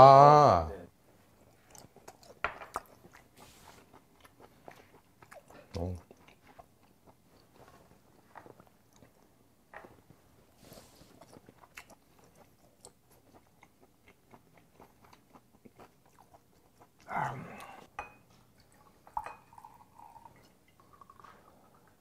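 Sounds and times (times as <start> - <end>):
person chewing: 1.4 - 10.0, 10.6 - 17.9.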